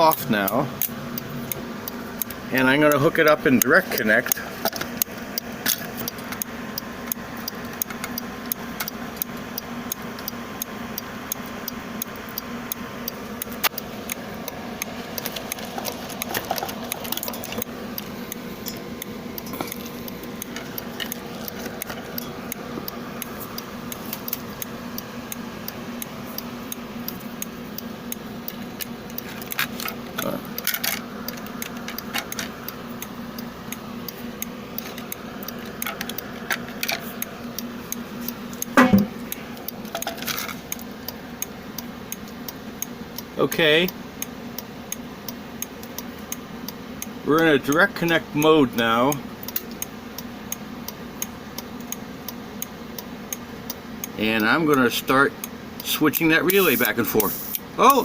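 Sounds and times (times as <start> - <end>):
steady low hum: 0.0 - 58.0
rattle of wires and parts: 3.2 - 6.4, 15.0 - 17.7, 28.6 - 32.6, 38.5 - 40.7.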